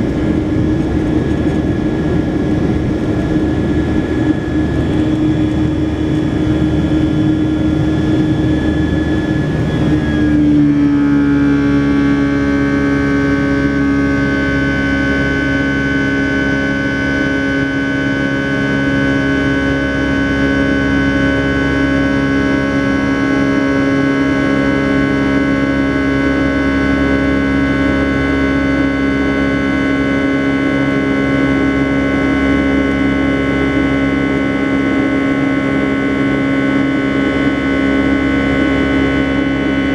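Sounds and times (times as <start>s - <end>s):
jet engine drone with whine: 0.0s - 39.9s.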